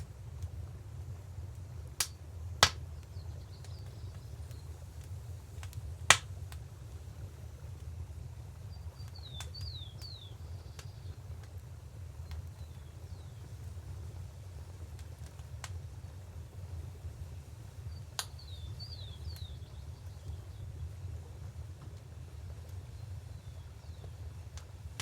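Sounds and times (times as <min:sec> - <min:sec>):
wood fire crackling: 0:00.0 - 0:25.0
small birds chirping: 0:02.7 - 0:05.7, 0:08.5 - 0:11.6, 0:12.2 - 0:13.7, 0:17.8 - 0:20.9, 0:22.4 - 0:24.7.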